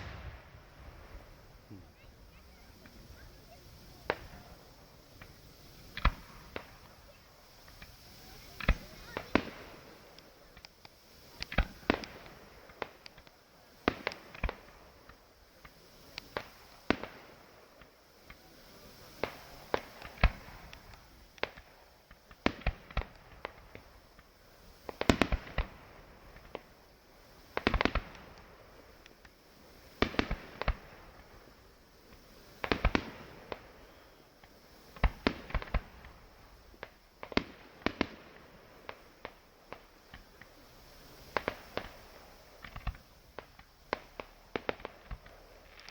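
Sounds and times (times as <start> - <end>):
fireworks exploding: 0.0 - 45.9.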